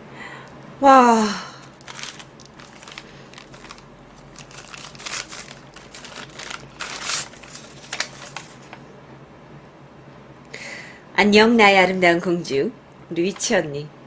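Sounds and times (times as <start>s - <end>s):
paper rustling and crinkling: 1.7s - 8.8s.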